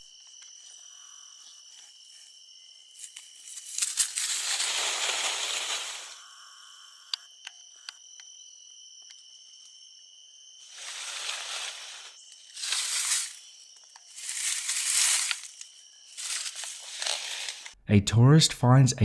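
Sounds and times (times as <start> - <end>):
insects buzzing: 0.0 - 17.8
rustling noise: 2.9 - 6.2, 10.6 - 13.5, 14.1 - 17.8.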